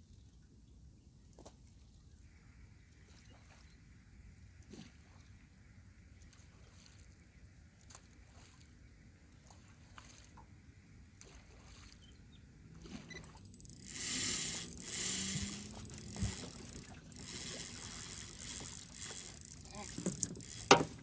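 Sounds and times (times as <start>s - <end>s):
water lapping against boat: 12.7s - 21.0s
faint ticks: 13.2s - 21.0s
sharp click: 13.5s - 21.0s.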